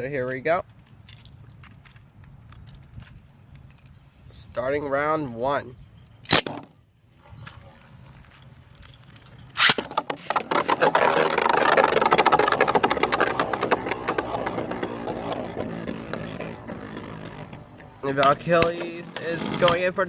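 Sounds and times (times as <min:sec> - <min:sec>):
spinning tops hitting plastic stadium: 0:09.6 - 0:20.0.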